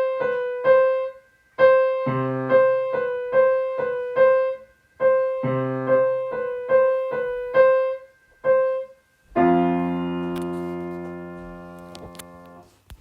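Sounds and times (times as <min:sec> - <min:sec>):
loud held piano chord: 0:00.0 - 0:12.6
piano playing short repeated notes: 0:00.0 - 0:12.7.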